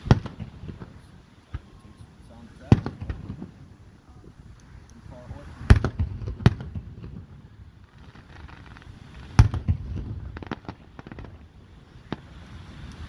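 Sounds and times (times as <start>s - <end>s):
firework shells bursting: 0.0s - 7.2s, 7.8s - 13.0s
crackling pops: 2.5s - 3.6s, 4.5s - 7.2s, 7.8s - 13.0s.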